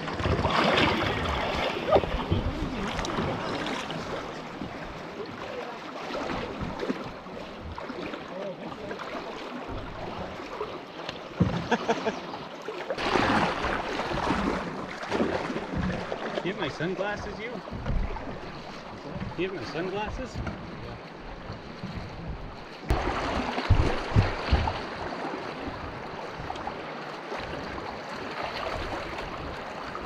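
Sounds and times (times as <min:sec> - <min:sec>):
water noise: 0:00.0 - 0:30.0
canoe knocks: 0:11.0 - 0:12.0, 0:13.0 - 0:27.9.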